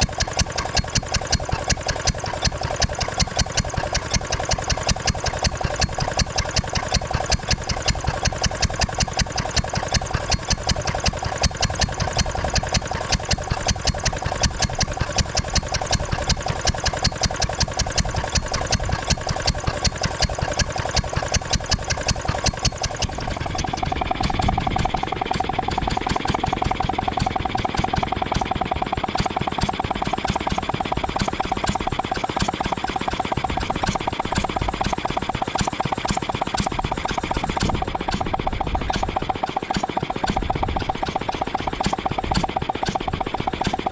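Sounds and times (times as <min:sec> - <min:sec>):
air compressor engine running: 0:00.0 - 0:43.9.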